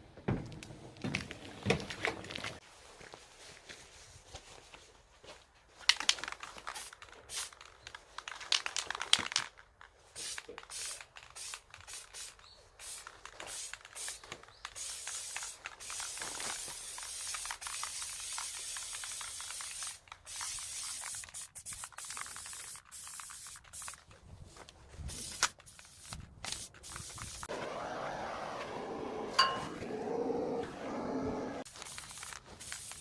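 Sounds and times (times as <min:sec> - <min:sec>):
hissing spray bursts: 0:14.8 - 0:24.0, 0:30.1 - 0:33.0.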